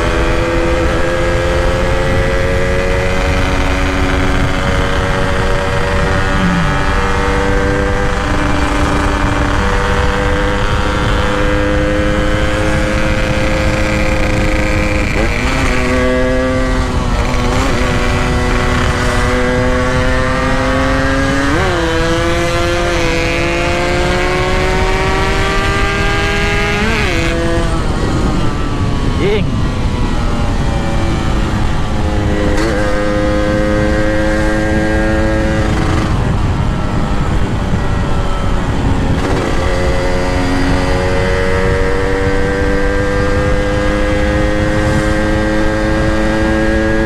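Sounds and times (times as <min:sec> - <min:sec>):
two-stroke motorcycle engine: 0:00.0 - 0:47.0
wind noise: 0:00.0 - 0:47.0.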